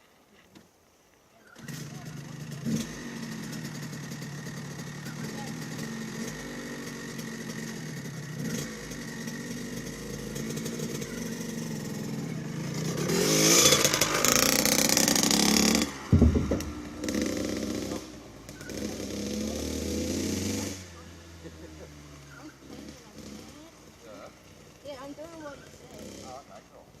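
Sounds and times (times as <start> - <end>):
dirt bike engine revving: 1.6 - 26.9
loud thump: 16.1 - 18.0.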